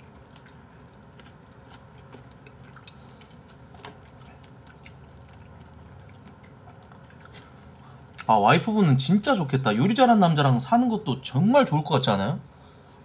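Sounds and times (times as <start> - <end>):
person chewing food: 0.0 - 8.3.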